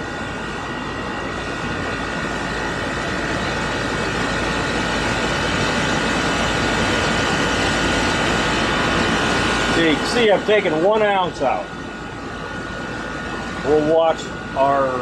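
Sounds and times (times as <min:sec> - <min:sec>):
air conditioner running: 0:00.0 - 0:15.0
faint high whine: 0:00.0 - 0:15.0.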